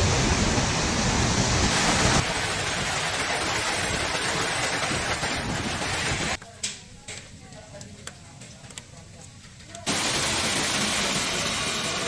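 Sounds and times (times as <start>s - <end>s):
heavy rain on microphone: 0.0s - 6.4s, 9.9s - 12.0s.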